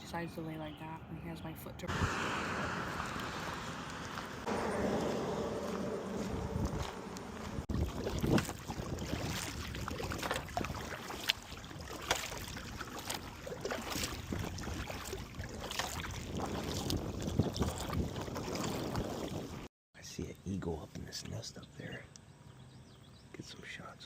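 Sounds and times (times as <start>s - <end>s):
wind buffeting microphone: 1.7s - 19.7s
water splashing around kayak: 1.9s - 19.7s.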